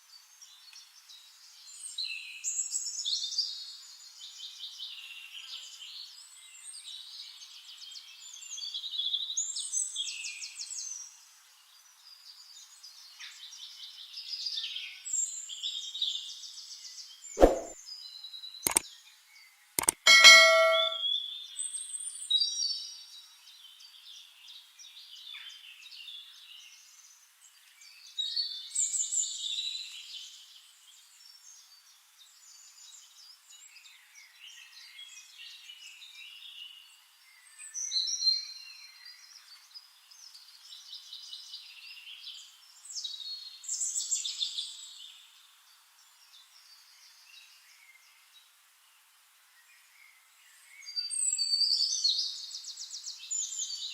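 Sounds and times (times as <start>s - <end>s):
brief metallic ring: 17.4s - 17.8s, 19.8s - 21.0s
sharp clicks: 19.8s - 21.0s.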